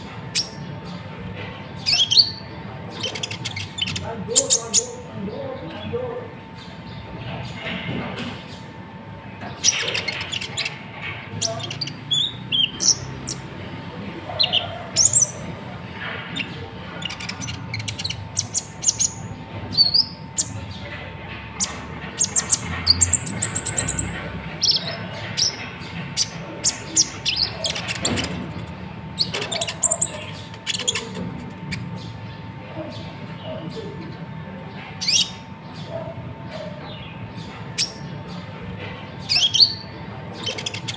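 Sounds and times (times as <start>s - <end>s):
bird chirping and trilling: 0.0s - 40.9s.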